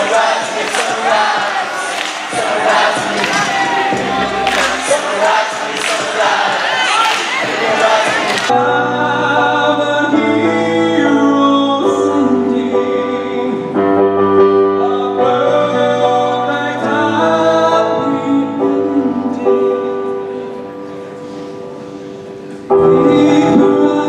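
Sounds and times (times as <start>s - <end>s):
choir singing sustained chords: 0.0s - 13.7s.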